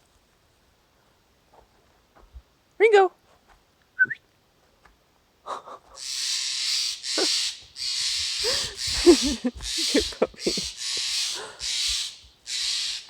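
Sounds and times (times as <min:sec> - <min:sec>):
owl hissing: 0:06.0 - 0:13.0.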